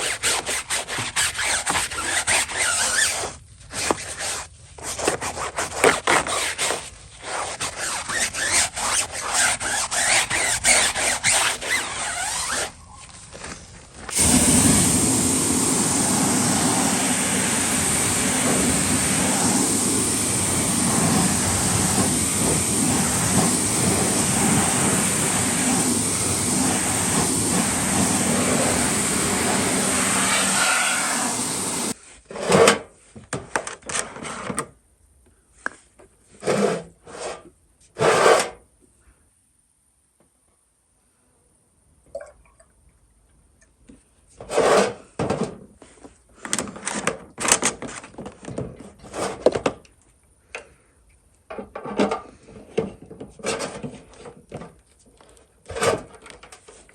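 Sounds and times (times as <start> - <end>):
brush scrubbing car: 0.0 - 12.8, 14.2 - 32.0
pressure washer water spray: 14.1 - 32.0.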